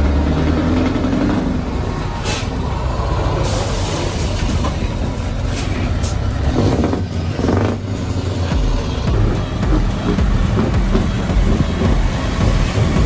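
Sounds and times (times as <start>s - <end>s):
heavy truck engine under load: 0.0s - 13.0s
air hiss bursts: 2.2s - 2.6s, 3.4s - 4.6s.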